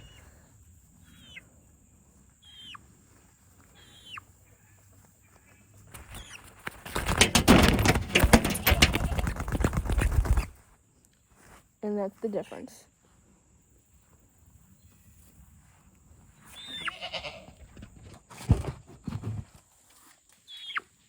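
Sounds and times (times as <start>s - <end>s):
young rooster peeping: 1.0s - 1.5s, 2.4s - 3.0s, 3.6s - 6.6s, 16.4s - 17.6s, 20.5s - 21.0s
rustling and knocking: 6.7s - 10.5s.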